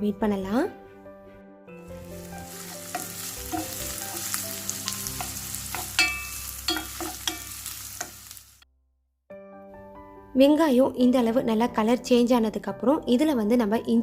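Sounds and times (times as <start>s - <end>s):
onion sizzling in oil: 1.8s - 8.6s
spatula clinking against pan: 2.6s - 8.2s.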